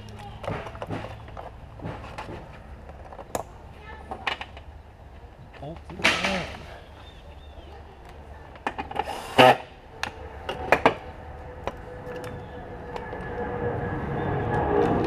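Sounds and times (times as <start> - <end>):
hand tools clicking and knocking: 0.0 - 3.5.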